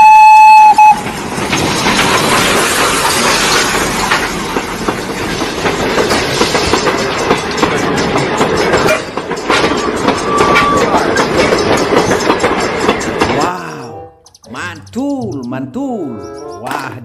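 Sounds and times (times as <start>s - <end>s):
train whistle: 0.0s - 1.0s
wheels clacking over rail joints: 0.5s - 15.1s
steam locomotive rumble and hiss: 0.6s - 13.5s.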